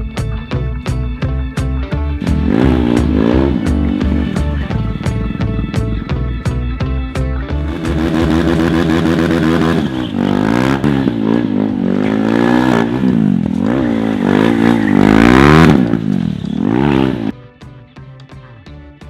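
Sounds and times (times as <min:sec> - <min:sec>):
motorcycle engine revving: 0:02.0 - 0:17.4.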